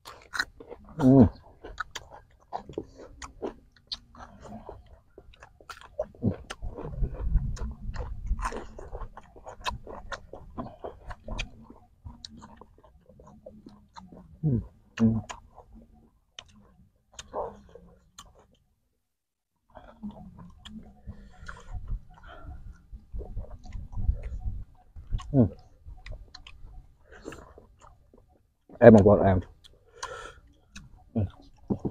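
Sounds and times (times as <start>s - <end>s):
chewing crisp vegetables: 0.0s - 18.6s, 19.7s - 31.9s
wet mouth clicks: 15.0s - 18.4s.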